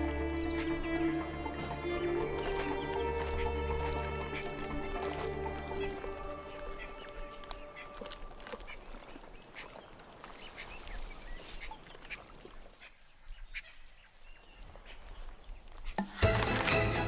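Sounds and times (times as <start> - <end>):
faint wild ambience: 0.0 - 17.0.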